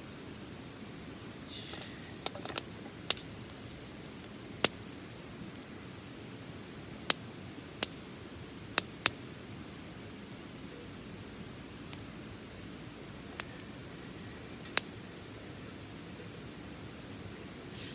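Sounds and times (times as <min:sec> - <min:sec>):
wood fire crackling: 0:00.0 - 0:17.9
sharp pops of fire: 0:01.6 - 0:05.7, 0:06.4 - 0:08.0, 0:08.6 - 0:09.4, 0:11.4 - 0:15.1.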